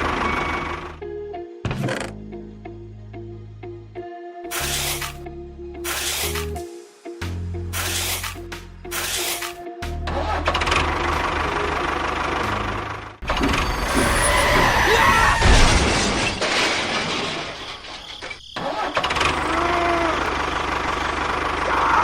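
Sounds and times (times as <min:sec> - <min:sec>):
small engine humming: 0:19.0 - 0:22.0.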